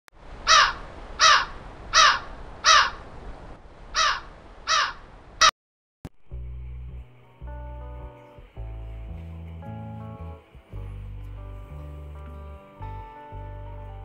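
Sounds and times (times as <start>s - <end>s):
bird calling loudly: 0.5s - 3.0s, 4.0s - 5.5s
music: 6.2s - 14.0s.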